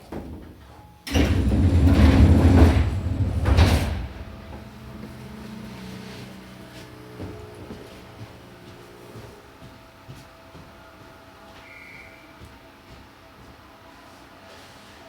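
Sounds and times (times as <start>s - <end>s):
train doors sliding with rumble: 0.0s - 8.4s
train electrical hum: 0.0s - 15.0s.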